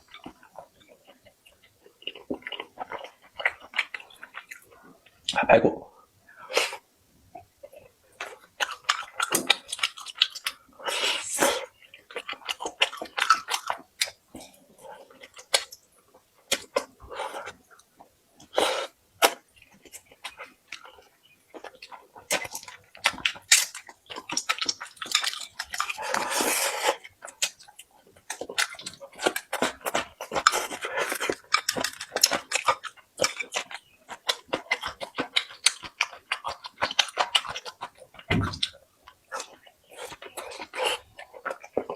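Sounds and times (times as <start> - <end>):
person chewing and biting: 21.6 - 41.9.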